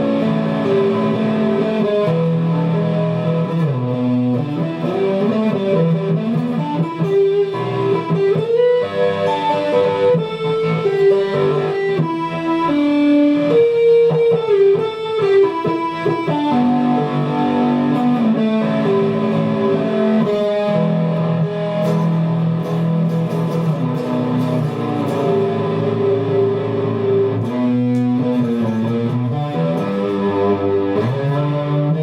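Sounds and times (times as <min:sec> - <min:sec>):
plucked guitar melody: 0:00.0 - 0:32.0.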